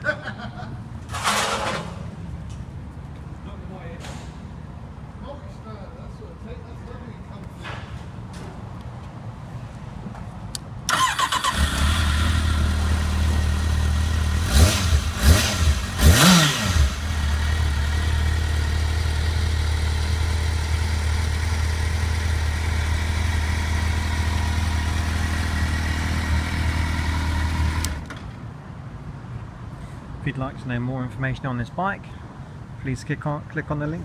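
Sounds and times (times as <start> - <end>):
motorcycle engine starting and idling: 10.8 - 28.4
motorcycle engine revving: 10.9 - 28.1.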